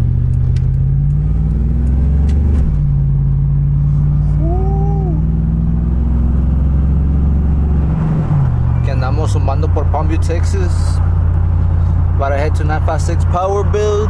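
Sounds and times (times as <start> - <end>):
truck engine drone from cab: 0.0 - 14.0
rising and falling tone: 4.2 - 8.3.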